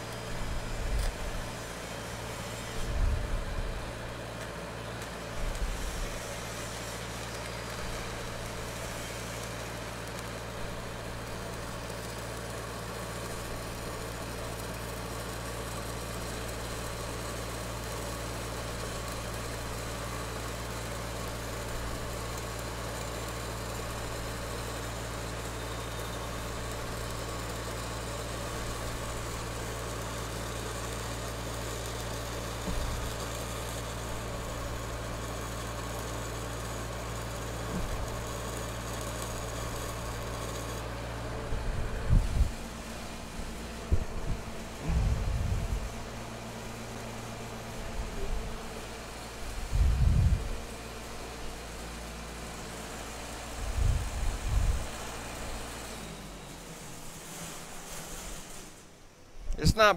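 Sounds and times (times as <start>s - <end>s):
welding machine humming: 0.0s - 59.9s
low thumps: 43.9s - 46.1s.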